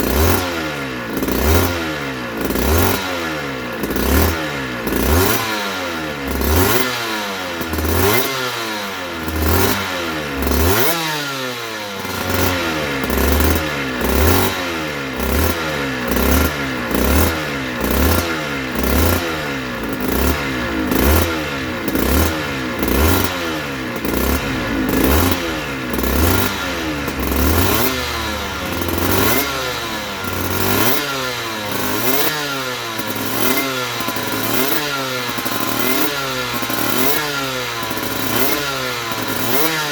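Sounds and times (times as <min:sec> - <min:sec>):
two-stroke engine revving: 0:00.0 - 0:39.9.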